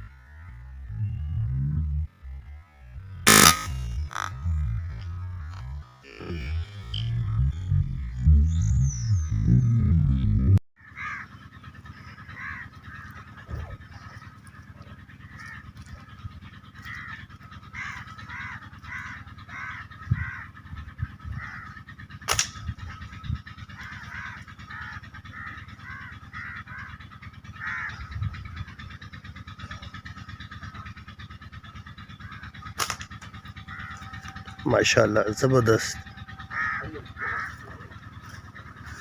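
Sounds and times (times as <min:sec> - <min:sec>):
crows cawing: 0:00.0 - 0:00.9, 0:02.7 - 0:07.5, 0:10.8 - 0:39.0
sharp click: 0:22.3 - 0:22.6.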